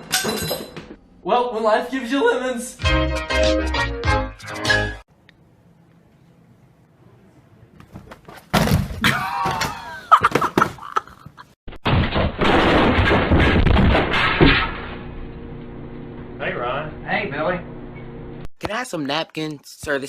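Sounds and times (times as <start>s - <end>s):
crashing and smashing: 8.5s - 10.8s, 11.7s - 15.1s.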